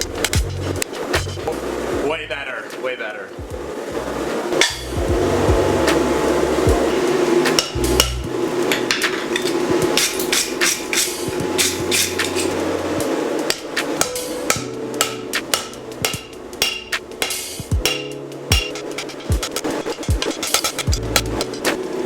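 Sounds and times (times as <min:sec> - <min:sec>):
rushing background noise: 0:00.0 - 0:22.0
hammer blows on anvil: 0:04.6 - 0:12.6, 0:13.5 - 0:21.9.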